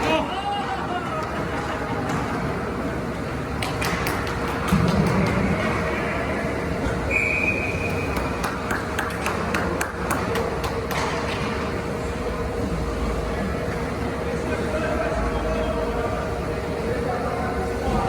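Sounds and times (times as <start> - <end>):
arena noise: 0.0 - 18.0
short high whistle: 7.1 - 8.2
hockey sticks and puck clacking: 7.4 - 11.7.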